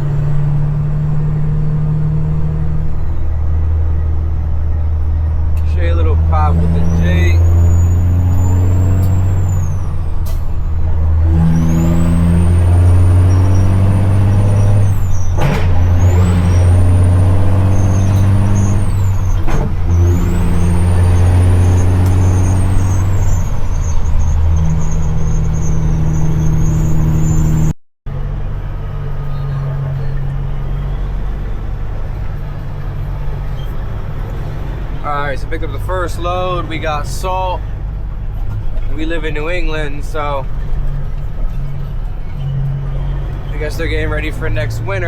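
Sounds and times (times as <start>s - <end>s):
diesel truck engine running: 0.0s - 45.0s
turbo whistle: 11.2s - 15.3s.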